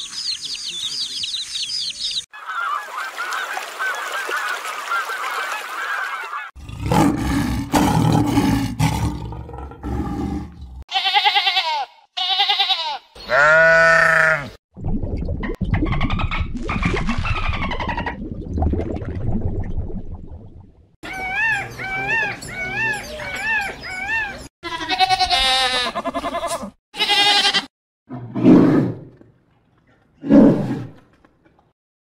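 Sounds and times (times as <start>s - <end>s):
chick peeping: 0.0s - 2.8s
lion growling: 6.6s - 10.8s.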